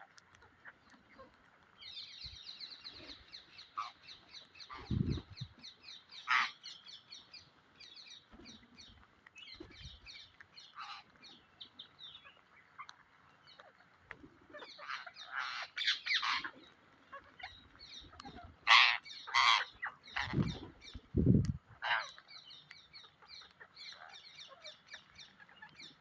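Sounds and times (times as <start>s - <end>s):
parrots chirping: 1.8s - 5.3s, 6.0s - 7.0s, 14.5s - 20.6s, 21.7s - 26.0s.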